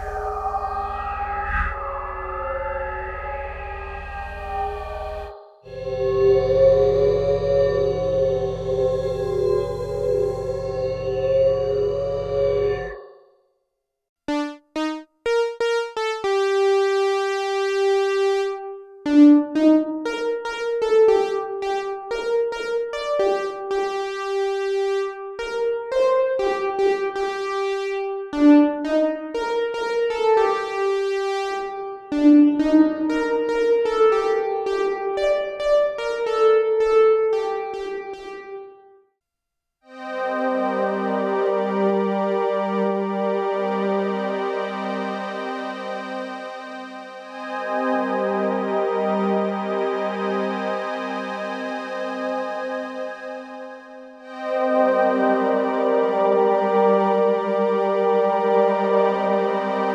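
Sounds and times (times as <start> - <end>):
wobbling synthesizer patch: 0.0 - 13.2, 14.3 - 16.8
synthesizer melody with reverb: 0.0 - 13.3, 14.3 - 39.1, 39.9 - 59.9.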